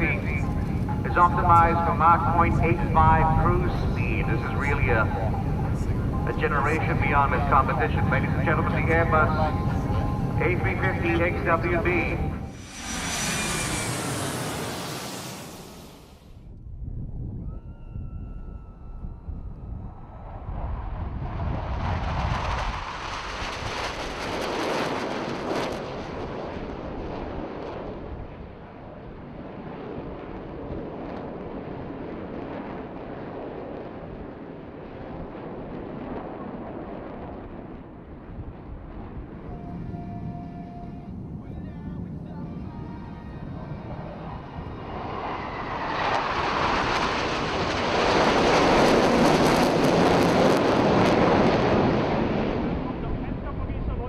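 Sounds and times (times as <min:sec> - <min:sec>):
jet airliner roaring past: 0:00.0 - 0:16.4, 0:17.8 - 0:54.0
wind buffeting microphone: 0:16.4 - 0:24.5.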